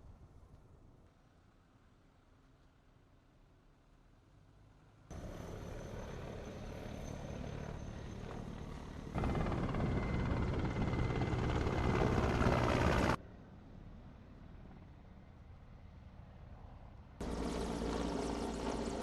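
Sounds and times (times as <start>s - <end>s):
helicopter rotor and engine: 5.1s - 19.0s.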